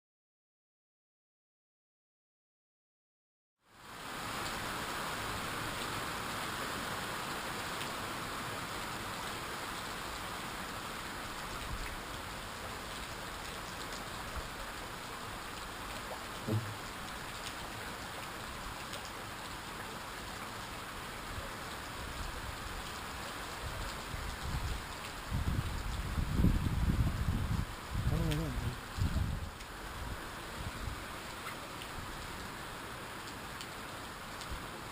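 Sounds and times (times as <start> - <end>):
heavy rain falling: 3.7 - 34.9
soft thump: 16.4 - 16.8.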